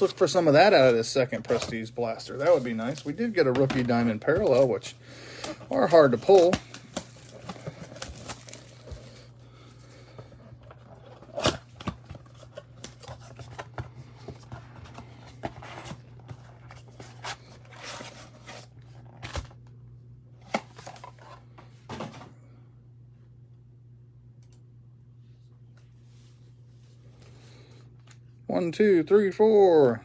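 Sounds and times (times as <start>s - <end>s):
wrapper and cardboard rustling: 0.0s - 9.3s
steady low hum: 0.0s - 30.0s.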